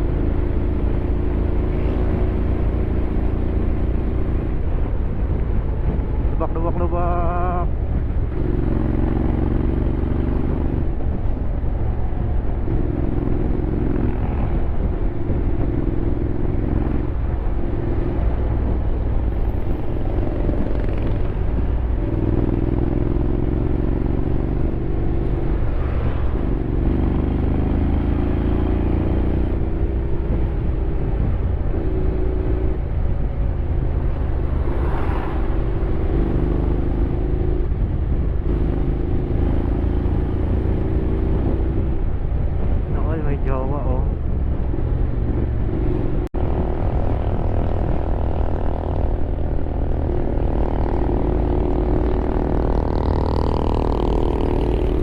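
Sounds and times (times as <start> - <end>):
wind and road rumble: 0.0 - 55.0
motorcycle engine revving: 12.6 - 18.8, 19.7 - 42.1, 44.6 - 55.0.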